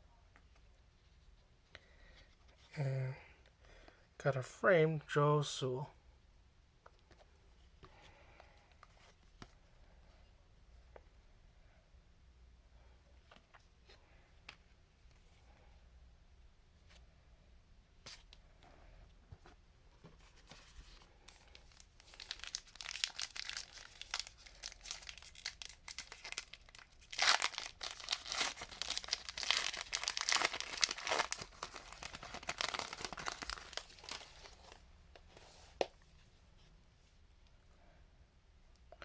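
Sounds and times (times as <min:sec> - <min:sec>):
foil wrapper tearing and crinkling: 0:22.0 - 0:34.3.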